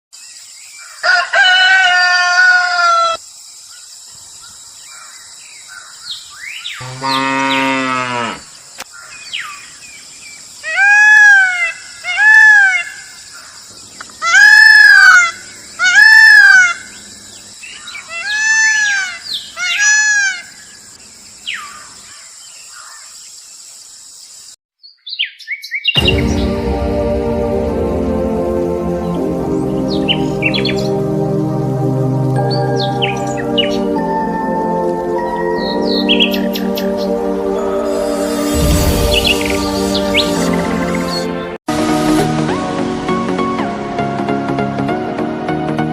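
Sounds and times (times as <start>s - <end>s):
rooster crowing: 0.9s - 3.2s
cow mooing: 6.8s - 8.5s
music: 26.0s - 45.9s
steady high hiss: 37.2s - 41.3s.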